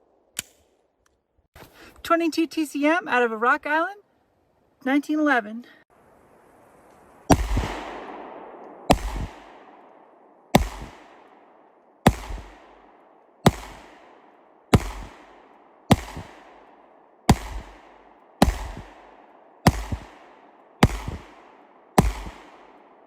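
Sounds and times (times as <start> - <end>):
pistol shots with echo: 7.3 - 23.0.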